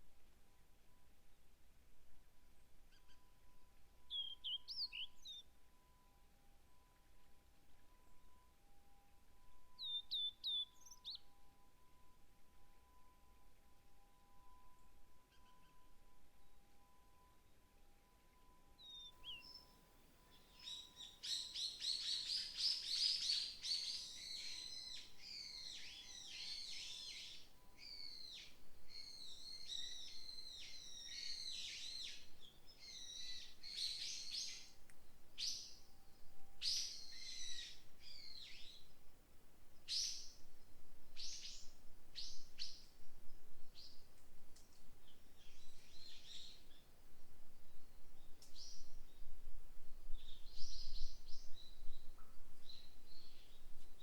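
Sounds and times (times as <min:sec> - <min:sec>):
small birds twittering: 0:18.8 - 0:19.7, 0:20.3 - 0:34.8, 0:36.6 - 0:38.9, 0:39.8 - 0:40.4.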